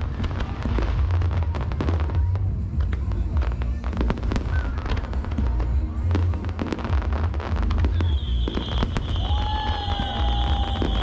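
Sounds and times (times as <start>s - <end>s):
continuous low rumble: 0.0s - 8.2s
fireworks bangs and crackles: 0.0s - 11.0s
steady high whistle: 7.9s - 11.0s.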